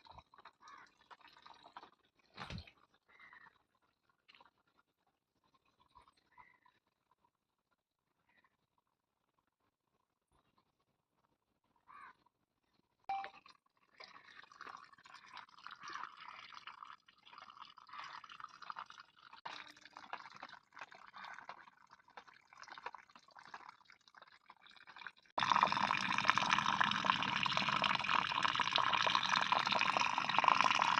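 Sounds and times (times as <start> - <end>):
rainwater dripping: 24.8 - 30.9.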